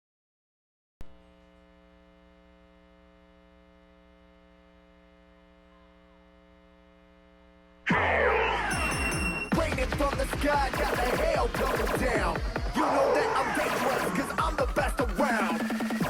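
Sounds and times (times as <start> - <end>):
faint electrical mains hum: 1.1 - 7.8.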